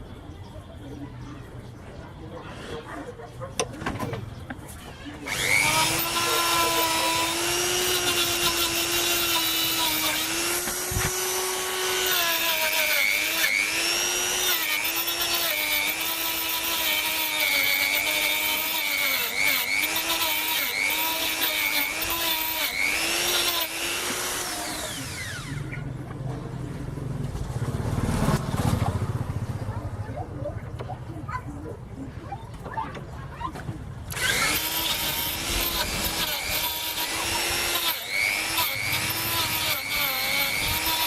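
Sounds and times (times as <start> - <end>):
power tool motor whining: 5.2 - 25.8, 34.1 - 41.0.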